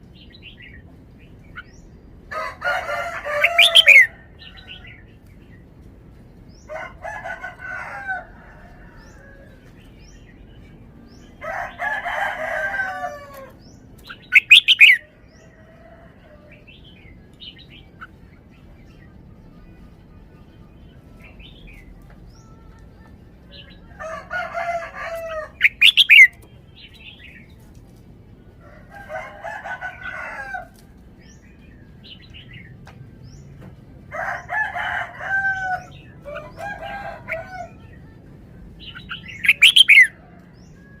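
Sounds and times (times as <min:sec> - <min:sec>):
bird singing warbling phrases: 0:02.8 - 0:05.1, 0:09.9 - 0:15.1, 0:16.5 - 0:27.6, 0:35.7 - 0:41.0.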